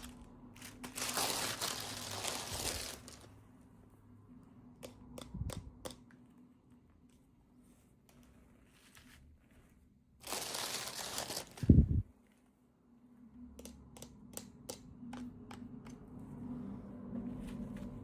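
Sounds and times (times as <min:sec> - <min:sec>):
packaging rustling and tearing: 0:00.0 - 0:03.3, 0:10.2 - 0:11.8.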